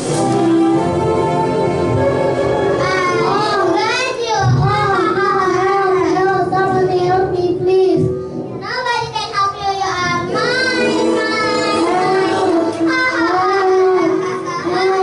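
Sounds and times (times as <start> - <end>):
backing music: 0.0 - 15.0
children singing: 10.2 - 15.0.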